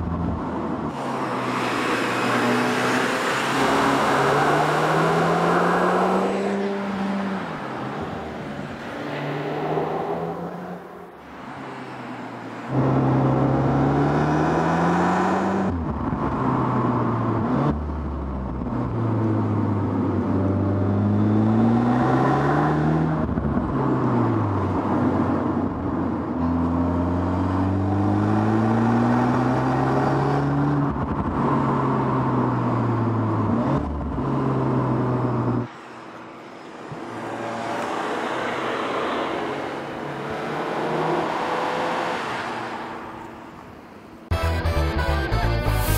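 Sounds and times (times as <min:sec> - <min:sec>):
car engine revving through gears: 0:00.9 - 0:07.2, 0:12.7 - 0:19.7, 0:20.3 - 0:24.2, 0:26.5 - 0:35.7.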